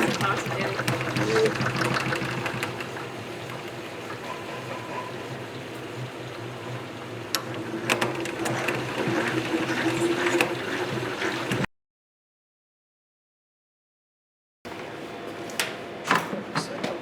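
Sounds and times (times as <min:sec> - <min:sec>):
honey extractor humming and whirring: 0:00.0 - 0:11.7.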